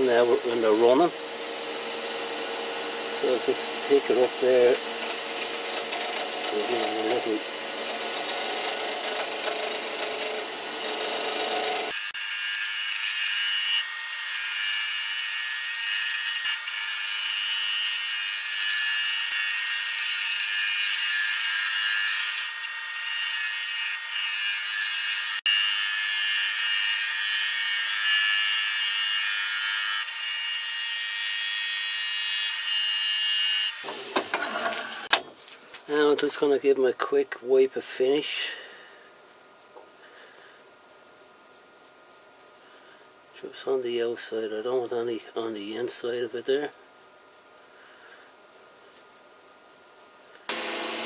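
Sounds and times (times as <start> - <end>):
wood lathe rasping hiss: 0.0 - 15.2, 50.5 - 51.0.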